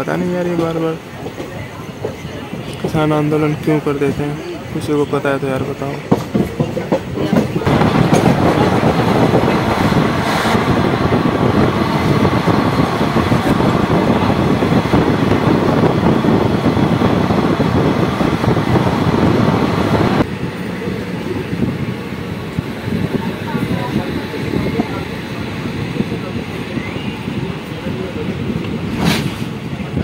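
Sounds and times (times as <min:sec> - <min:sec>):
train wheels rumbling on rails: 0:00.0 - 0:30.0
rushing air: 0:07.6 - 0:30.0.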